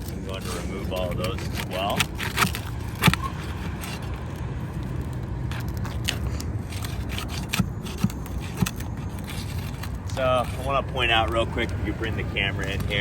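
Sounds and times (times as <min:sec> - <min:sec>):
nails prying clicks and scrapes: 0:00.0 - 0:13.0.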